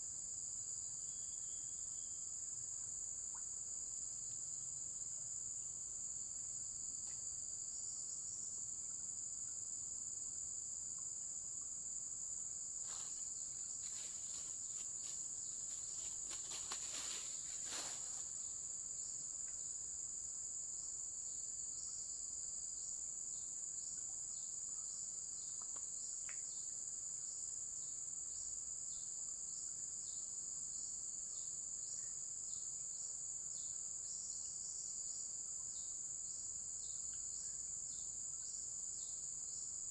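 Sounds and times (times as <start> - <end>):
insects trilling: 8.7 - 39.9.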